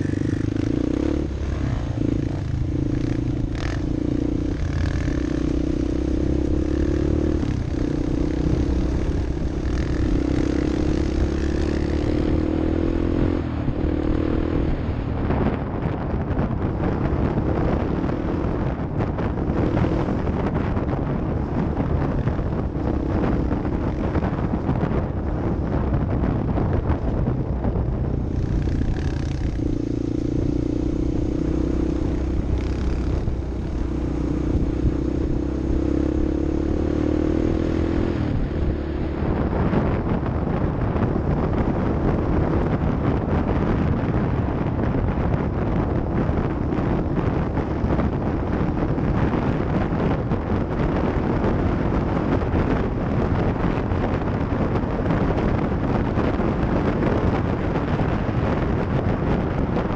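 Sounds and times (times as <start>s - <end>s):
vehicle engine running: 0.0s - 12.1s
vehicle rattling over rough ground: 19.0s - 59.9s.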